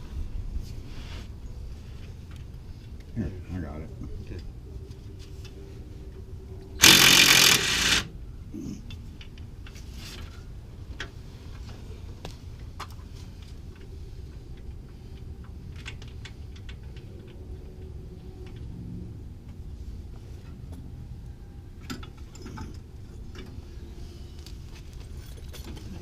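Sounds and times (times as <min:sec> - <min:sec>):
power tool burst: 0:06.8 - 0:08.1.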